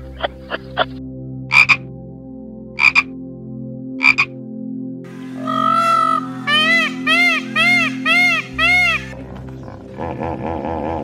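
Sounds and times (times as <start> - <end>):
peacock calling: 5.2 - 9.8.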